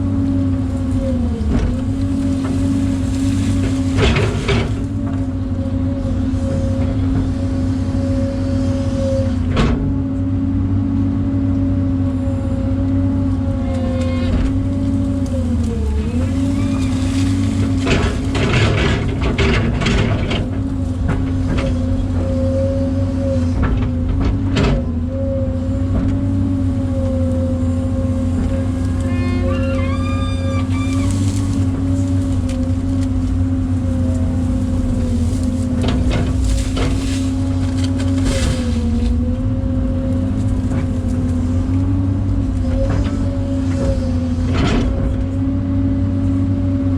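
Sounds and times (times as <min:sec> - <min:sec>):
excavator diesel engine running: 0:00.0 - 0:46.9
short squeaks: 0:13.7 - 0:19.0, 0:28.2 - 0:33.1.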